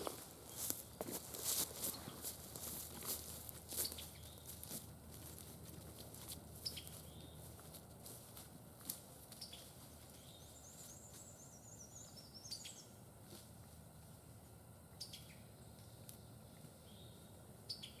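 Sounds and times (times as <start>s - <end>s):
songbird calls: 10.2s - 13.0s.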